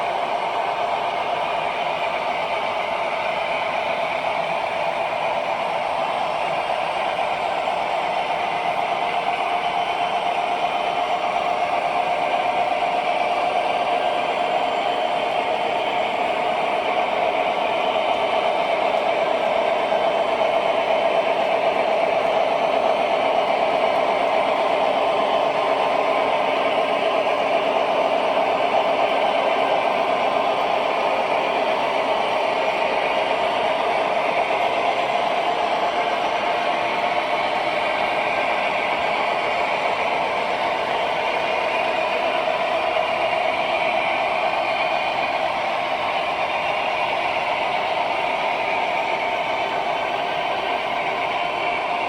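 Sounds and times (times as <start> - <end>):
train wheels on rails: 0.0 - 52.0.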